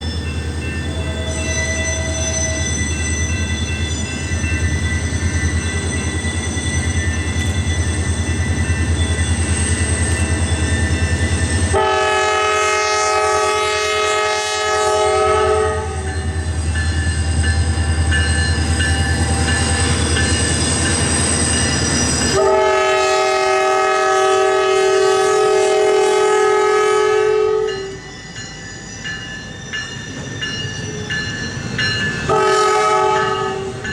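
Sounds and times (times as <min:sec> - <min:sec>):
diesel locomotive engines rumbling: 0:00.0 - 0:33.9
train air horn blasts: 0:11.7 - 0:16.1, 0:22.3 - 0:28.0, 0:32.3 - 0:33.8.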